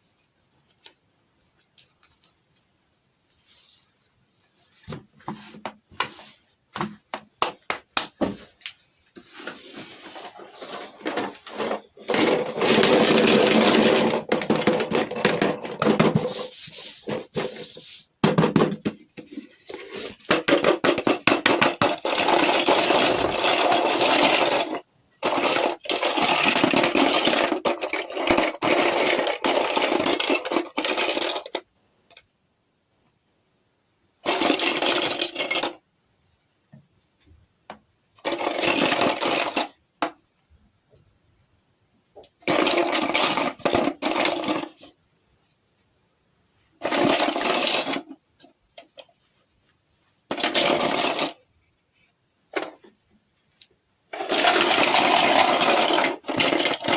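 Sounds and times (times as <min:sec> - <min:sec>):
hands rubbing toy packaging: 0:16.0 - 0:18.2.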